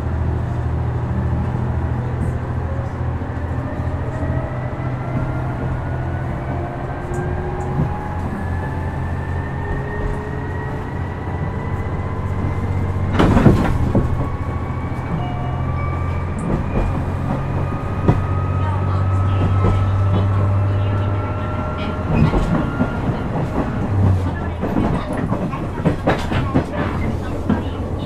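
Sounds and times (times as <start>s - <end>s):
diesel railcar engine drone: 0.0s - 28.0s
train wheels clattering: 21.7s - 28.0s.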